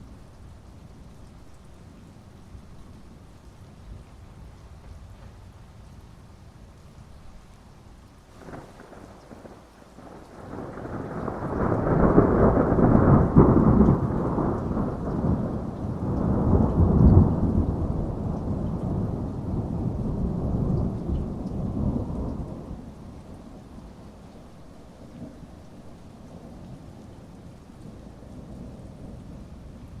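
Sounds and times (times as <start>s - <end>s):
steady rain: 0.0s - 30.0s
thunder rumbling: 8.4s - 30.0s.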